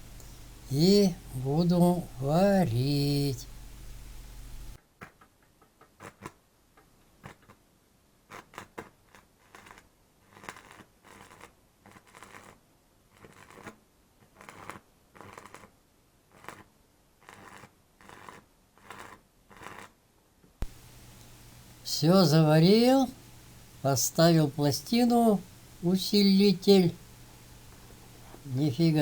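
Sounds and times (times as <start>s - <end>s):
welding arc crackling: 0.0s - 4.8s, 20.6s - 29.0s.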